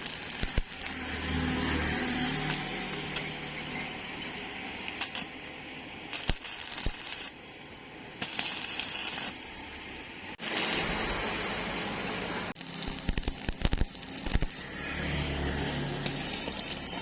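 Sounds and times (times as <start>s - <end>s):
arc welding crackling hiss: 0.0s - 1.1s, 5.0s - 5.4s, 6.1s - 11.4s, 12.6s - 14.7s, 16.1s - 17.0s.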